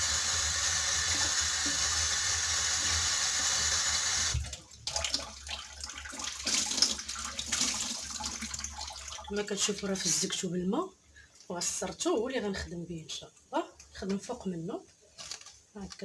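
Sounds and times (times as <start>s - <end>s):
kitchen tap running: 0.0s - 10.2s
water splashing and dripping: 4.4s - 9.4s.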